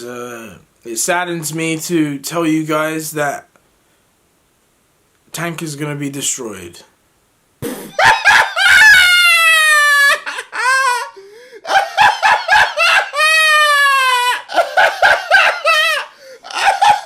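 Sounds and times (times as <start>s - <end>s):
man laughing hysterically: 7.6s - 17.0s.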